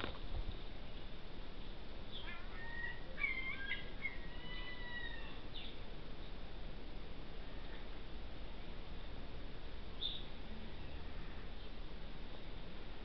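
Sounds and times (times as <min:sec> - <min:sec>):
steady background hiss: 0:00.0 - 0:13.0
small birds chirping and whistling: 0:02.1 - 0:05.8, 0:10.0 - 0:10.3.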